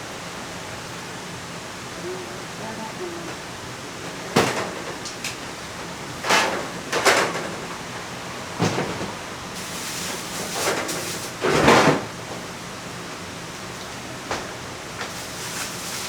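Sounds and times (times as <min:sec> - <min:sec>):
steady background hiss: 0:00.0 - 0:04.6.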